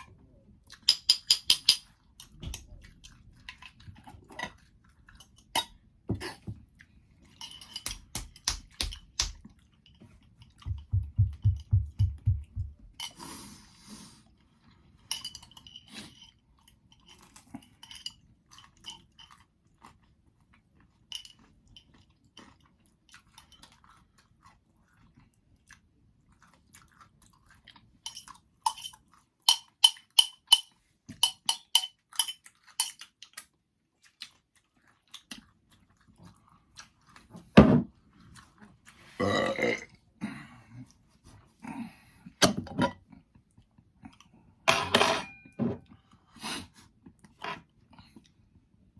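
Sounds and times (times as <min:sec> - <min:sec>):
pizza being chewed: 0:16.5 - 0:29.4, 0:32.0 - 0:39.2.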